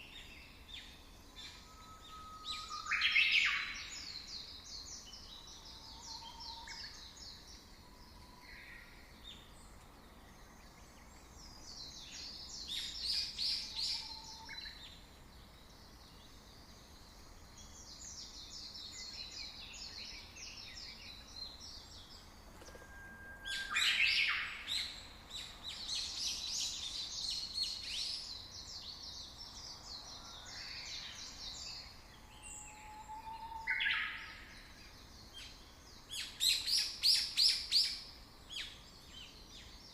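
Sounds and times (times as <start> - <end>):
faint steady hiss: 0.0 - 39.9
short whistled bird notes: 22.6 - 24.6.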